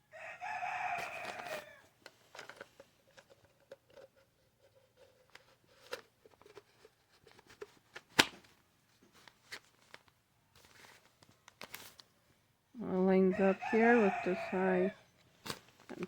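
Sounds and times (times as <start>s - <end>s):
small handling clicks and rustles: 1.0s - 12.2s, 15.2s - 16.0s.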